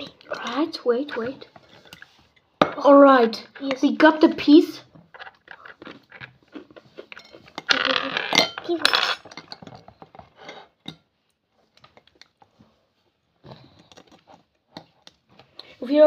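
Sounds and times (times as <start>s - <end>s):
metal utensils and dishes clattering: 0.0s - 4.1s, 5.1s - 11.0s.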